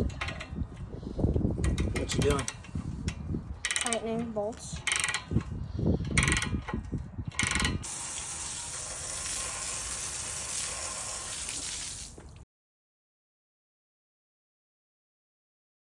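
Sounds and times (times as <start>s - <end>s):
ratchet wrench clicking: 4.8s - 5.4s, 6.1s - 6.6s, 7.3s - 8.6s.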